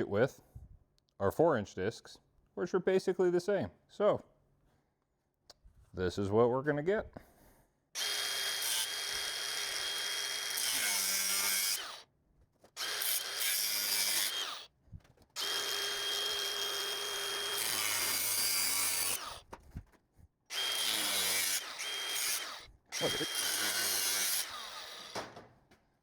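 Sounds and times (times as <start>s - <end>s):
angle grinder cutting steel: 8.0s - 12.0s, 12.8s - 14.7s, 15.4s - 19.4s, 20.5s - 25.2s.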